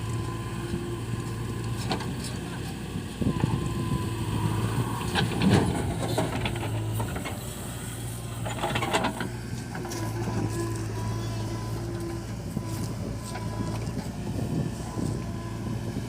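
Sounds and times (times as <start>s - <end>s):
diesel engine running: 0.0s - 16.0s
metallic clanks and rattles: 8.4s - 10.0s.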